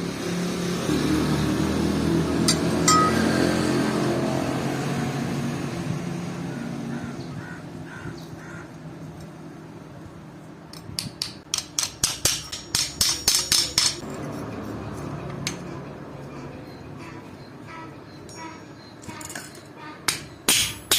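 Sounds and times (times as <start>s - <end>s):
hammer striking steel: 2.5s - 3.7s, 11.0s - 14.1s, 20.1s - 20.9s.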